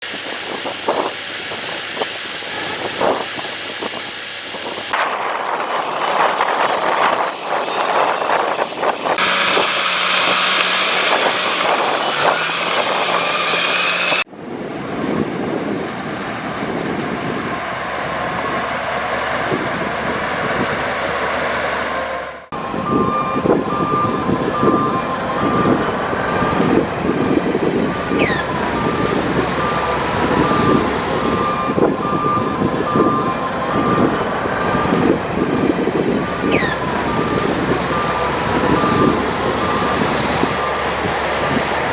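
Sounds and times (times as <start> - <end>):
heavy machinery engine running: 4.2 - 41.9
reversing alarm beeping: 6.0 - 14.2, 22.6 - 41.9.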